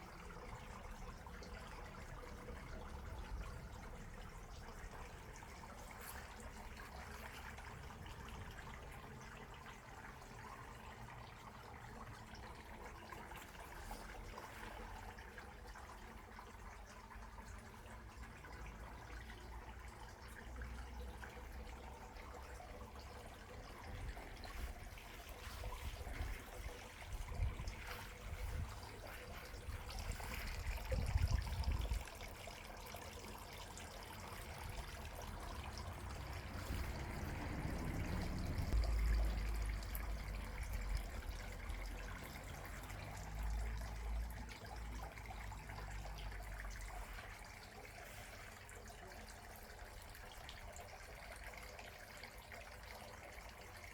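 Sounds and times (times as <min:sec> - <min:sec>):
water trickling: 0:00.0 - 0:53.9.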